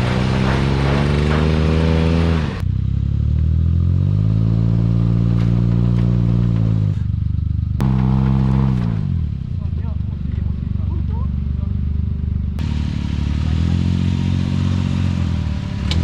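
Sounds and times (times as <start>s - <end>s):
small engine revving: 7.8s - 9.4s, 12.6s - 16.0s.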